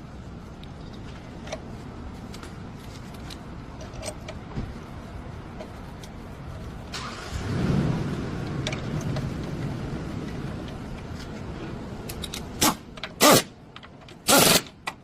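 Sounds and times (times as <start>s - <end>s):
road rumble: 0.0s - 15.0s
car engine: 6.8s - 12.8s.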